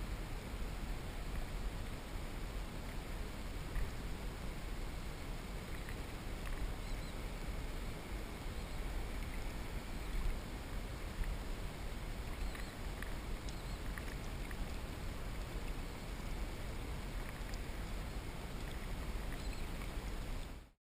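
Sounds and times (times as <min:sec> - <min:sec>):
water and wind noise: 0:00.0 - 0:20.8
faint high chirps and clicks: 0:05.7 - 0:07.2, 0:12.3 - 0:14.8, 0:18.6 - 0:20.5.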